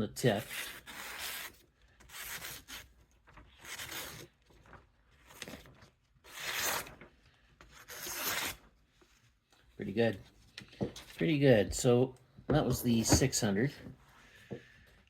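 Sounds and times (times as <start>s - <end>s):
knife slicing paper: 6.3s - 7.0s, 7.8s - 8.6s.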